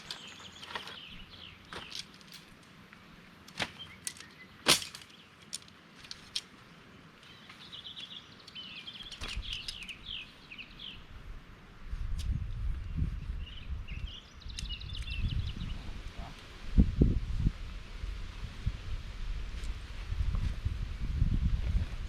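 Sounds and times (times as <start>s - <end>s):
small birds chirping: 0.0s - 2.3s, 3.6s - 5.5s, 6.2s - 11.1s, 12.1s - 16.5s.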